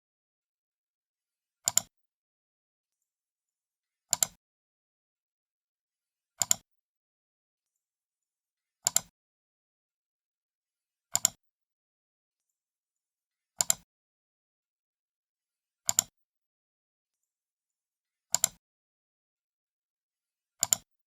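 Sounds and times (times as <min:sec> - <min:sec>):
computer mouse button clicking: 0:01.7 - 0:01.9, 0:04.1 - 0:04.4, 0:06.4 - 0:06.6, 0:08.9 - 0:09.1, 0:11.2 - 0:11.4, 0:13.6 - 0:13.8, 0:15.9 - 0:16.1, 0:18.3 - 0:18.6, 0:20.6 - 0:20.8.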